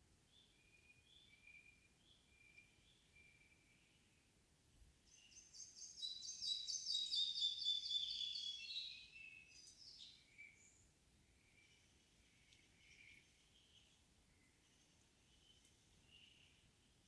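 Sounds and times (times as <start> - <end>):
faint bird whistles: 5.1 - 10.8.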